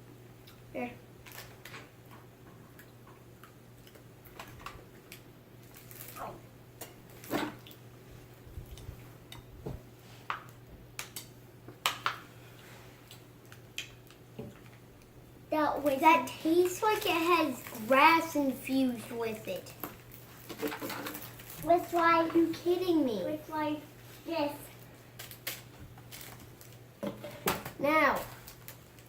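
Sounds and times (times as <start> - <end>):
snack crunching and packet crackling: 2.8 - 6.2, 24.8 - 26.8, 28.3 - 29.0.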